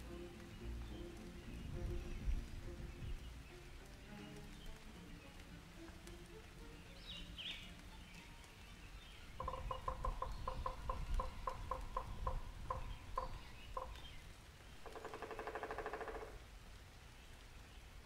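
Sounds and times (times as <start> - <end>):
bird rattling trill: 14.8 - 16.4.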